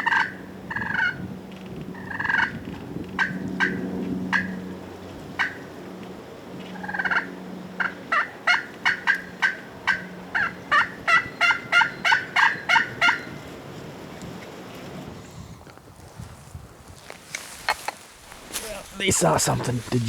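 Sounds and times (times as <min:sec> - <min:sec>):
turkey alarm putts: 0:00.0 - 0:01.2, 0:05.4 - 0:05.6, 0:06.7 - 0:13.4
turkey rattling call: 0:00.0 - 0:01.2, 0:02.0 - 0:02.6, 0:03.2 - 0:04.6, 0:05.4 - 0:05.6, 0:06.8 - 0:13.4.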